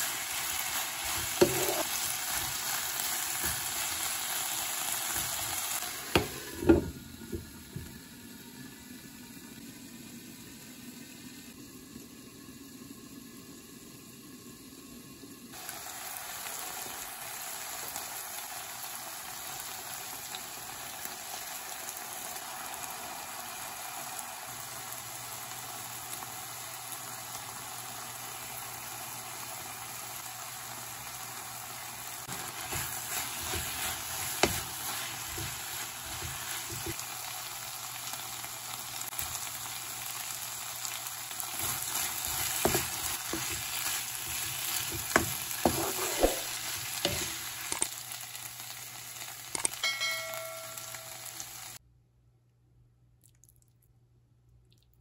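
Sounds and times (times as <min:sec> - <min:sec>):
food sizzling in a pan: 0:00.0 - 0:51.8
stirring knocks against pan: 0:32.7 - 0:35.6.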